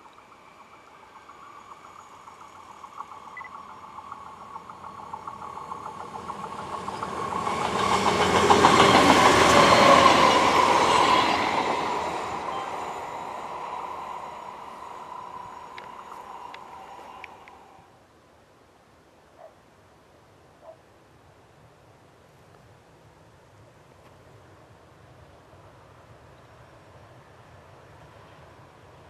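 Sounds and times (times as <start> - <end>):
train wheels rushing on rail: 0.0 - 17.9.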